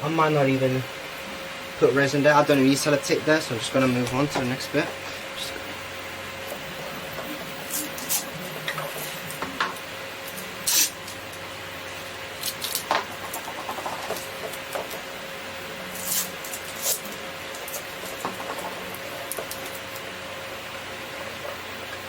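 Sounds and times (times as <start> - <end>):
faint steady hum: 0.0 - 22.0
masking tape rasping pulls: 10.6 - 11.1, 15.9 - 18.2.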